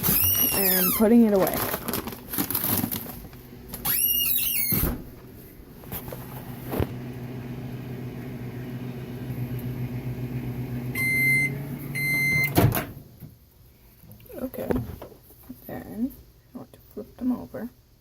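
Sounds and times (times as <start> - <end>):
microwave oven humming: 1.9 - 13.2
microwave beeps: 9.5 - 12.8.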